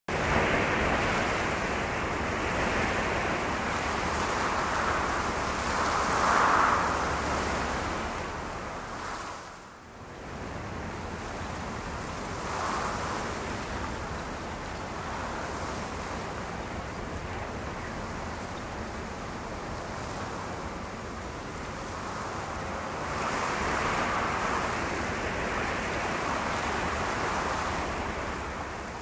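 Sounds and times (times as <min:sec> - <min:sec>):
steady rushing noise: 0:00.1 - 0:29.0.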